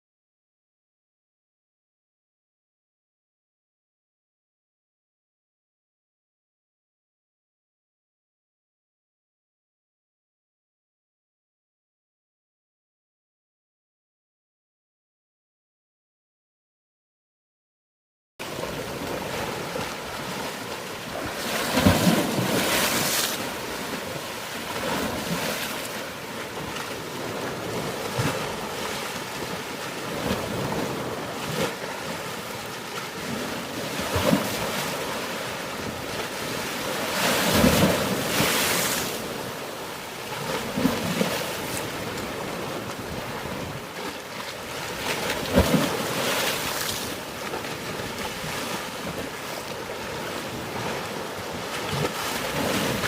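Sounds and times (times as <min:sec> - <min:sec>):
sea waves washing in: 0:18.4 - 0:53.0.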